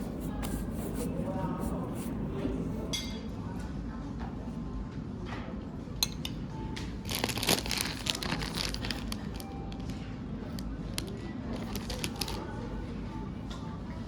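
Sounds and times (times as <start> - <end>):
crinkling and rustling handling: 0.0 - 2.7, 7.0 - 10.0, 11.0 - 12.6.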